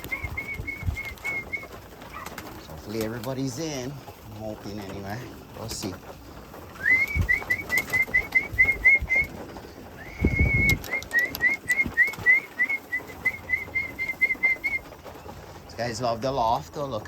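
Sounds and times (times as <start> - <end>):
person whistling: 6.8 - 9.3, 10.0 - 14.8.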